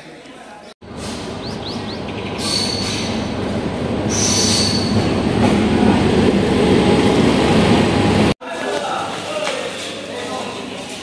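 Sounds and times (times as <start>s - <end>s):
train rumble: 0.8s - 8.4s
wheel and brake squeal: 2.4s - 3.3s, 4.1s - 5.1s.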